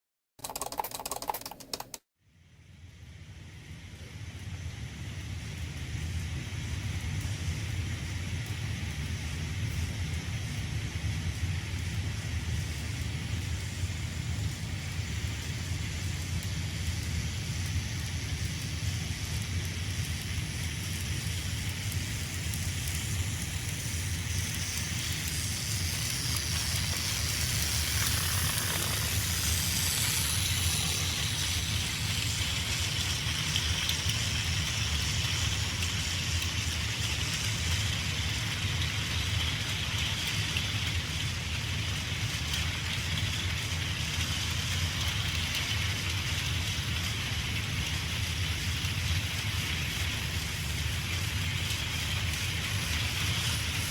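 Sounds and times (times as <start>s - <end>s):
wheels running on plastic track: 0.4s - 2.0s, 5.8s - 53.9s
toy train motor whirring: 15.3s - 41.2s, 48.3s - 53.9s.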